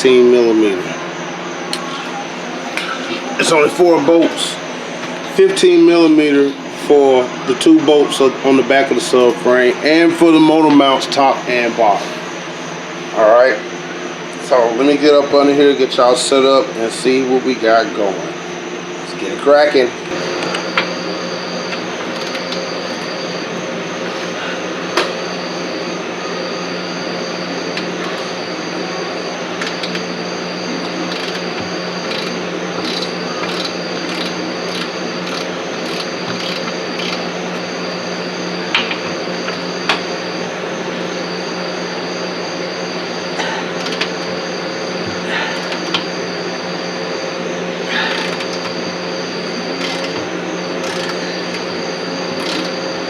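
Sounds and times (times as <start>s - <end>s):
fan-like machine hum: 0.0s - 53.0s
high whine: 0.0s - 53.0s
tool clicks: 22.1s - 23.1s, 32.1s - 37.2s, 50.8s - 51.6s.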